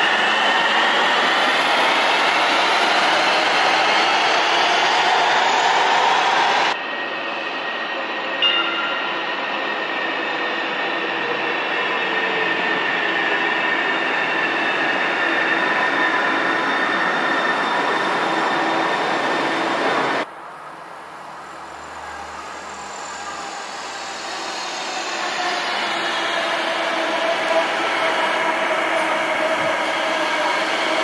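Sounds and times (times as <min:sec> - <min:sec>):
train running by: 0:00.0 - 0:31.0.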